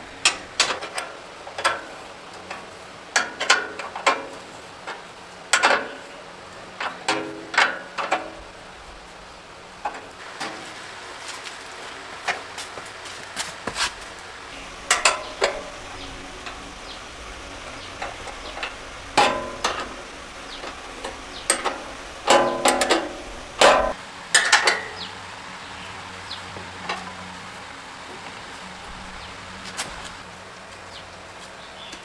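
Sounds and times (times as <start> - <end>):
metal tools clinking: 14.5 - 24.9.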